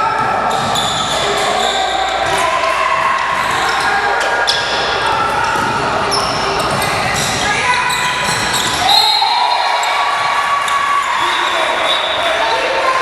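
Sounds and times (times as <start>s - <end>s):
sneakers squeaking: 0.0s - 12.9s
voices of players and crowd: 0.0s - 13.0s
basketball bouncing on court: 4.5s - 8.9s.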